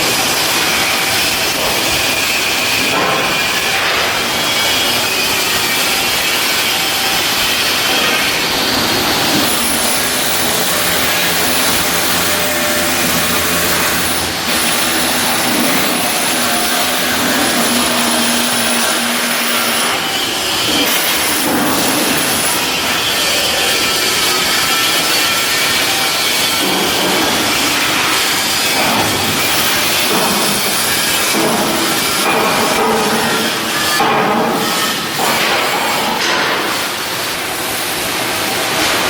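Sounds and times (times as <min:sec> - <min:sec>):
steady hum: 0:03.5 - 0:26.6.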